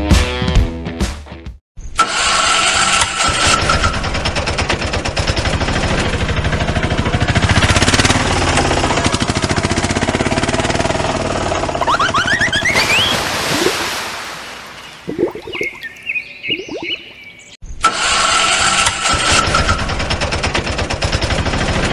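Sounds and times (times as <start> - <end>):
engine chugging: 3.2 - 12.7.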